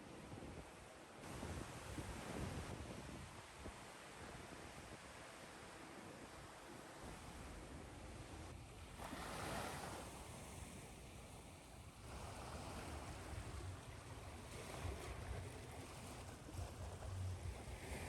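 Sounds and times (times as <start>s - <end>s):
ocean waves washing on shore: 9.0s - 18.0s.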